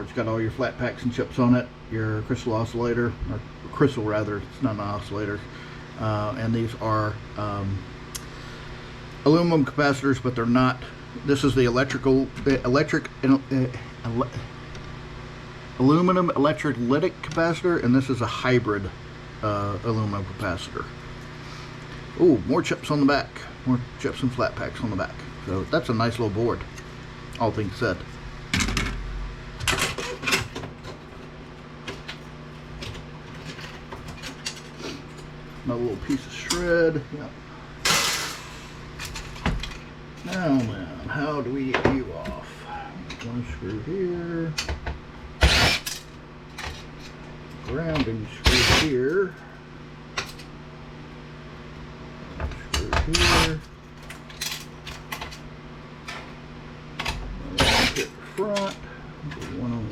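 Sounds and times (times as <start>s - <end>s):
steady low hum: 0.0s - 59.9s
power drill spinning a screw: 45.4s - 45.9s, 48.5s - 48.9s, 57.6s - 58.1s.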